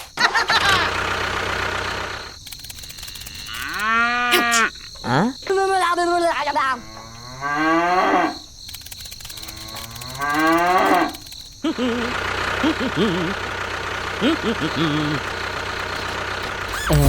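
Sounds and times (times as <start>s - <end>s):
mechanical running noise: 1.3s - 3.8s, 8.7s - 11.6s, 15.2s - 17.0s
cow mooing: 6.8s - 8.4s.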